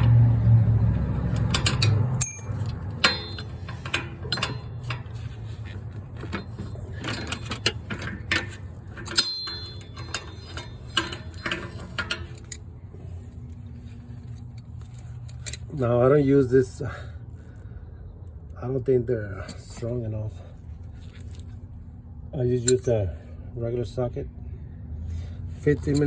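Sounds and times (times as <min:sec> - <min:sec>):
steady low hum: 0:00.0 - 0:26.0
metal tools clinking: 0:01.2 - 0:15.9, 0:22.6 - 0:23.2, 0:25.6 - 0:26.0.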